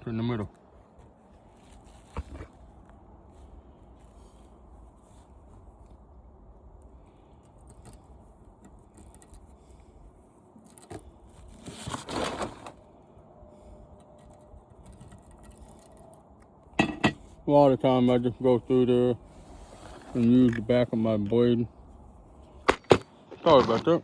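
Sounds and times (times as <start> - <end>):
metal handling noises: 13.9 - 17.5
metal scraping: 16.8 - 17.4.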